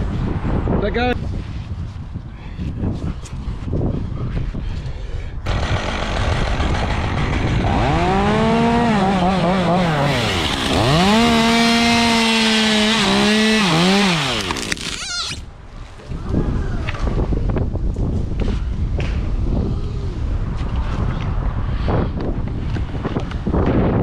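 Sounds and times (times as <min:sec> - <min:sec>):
chainsaw cutting wood: 0:05.5 - 0:15.4.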